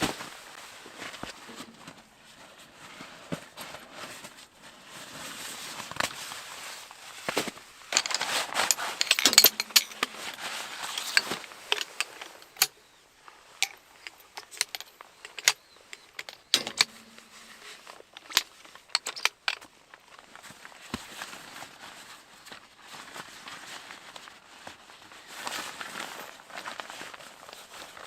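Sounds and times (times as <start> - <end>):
dense rustling of gear: 0.0 - 28.0
sharp clicks and metallic clinks: 8.0 - 12.8, 13.5 - 19.6.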